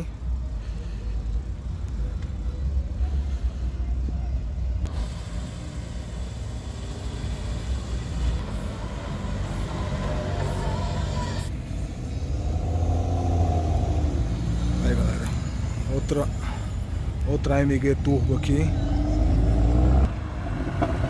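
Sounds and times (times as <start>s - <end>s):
car engine low rumble: 0.0s - 21.0s
hiss: 4.9s - 8.4s.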